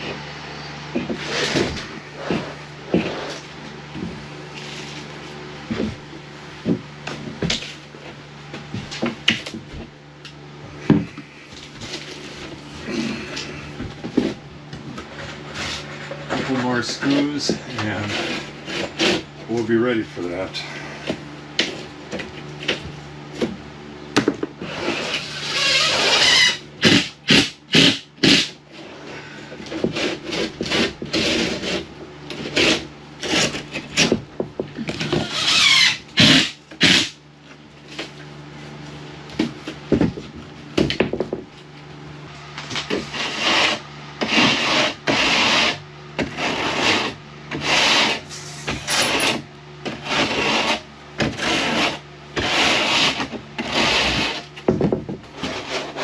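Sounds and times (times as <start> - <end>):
steady low hum: 0.0 - 56.0
scraping and rubbing drywall: 0.9 - 9.9, 10.7 - 41.6, 42.6 - 56.0.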